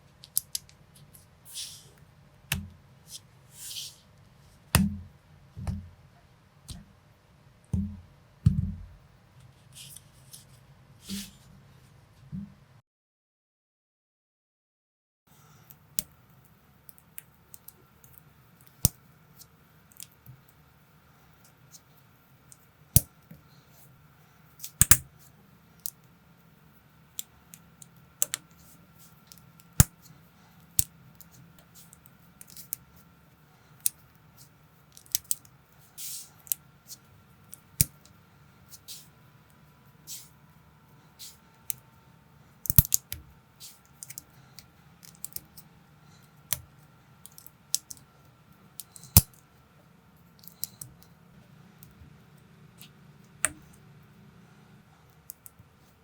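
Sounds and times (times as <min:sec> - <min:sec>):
faint steady hum: 0:15.3 - 0:56.0.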